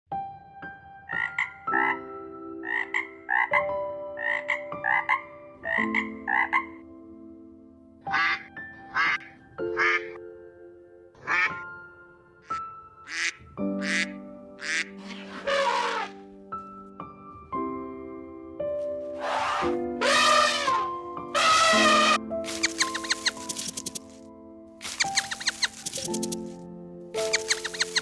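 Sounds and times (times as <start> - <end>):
short animal calls: 14.7 - 16.2, 19.2 - 24.1, 24.8 - 26.5, 27.2 - 28.0.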